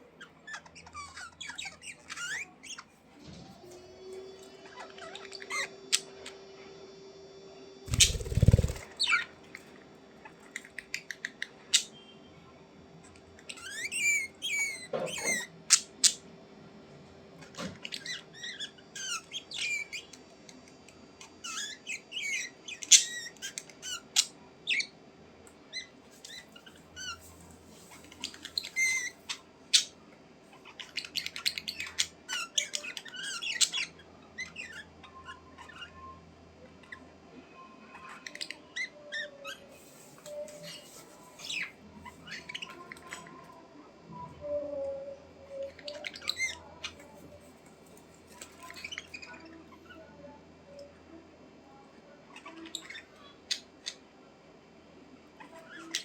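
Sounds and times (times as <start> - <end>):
budgerigars chirping: 7.9 - 8.8.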